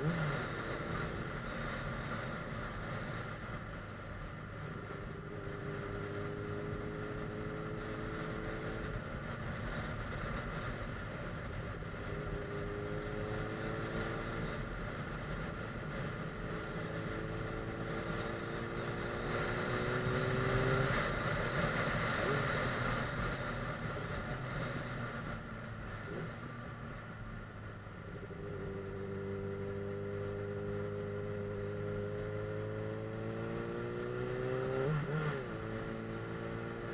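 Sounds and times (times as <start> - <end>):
motorcycle engine accelerating: 0.0 - 36.9
wind and road noise: 0.0 - 36.9.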